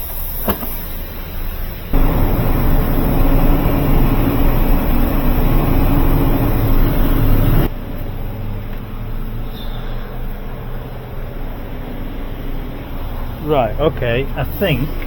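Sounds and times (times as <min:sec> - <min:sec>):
machinery humming: 0:01.9 - 0:07.7.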